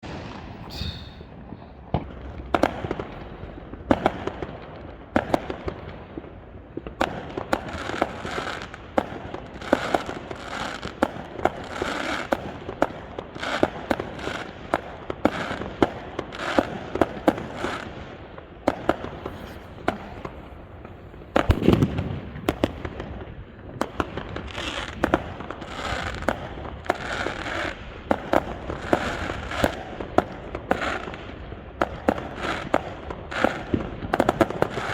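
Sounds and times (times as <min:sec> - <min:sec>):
fireworks crackling: 0:00.0 - 0:34.9
fireworks sharp bangs: 0:00.0 - 0:34.9.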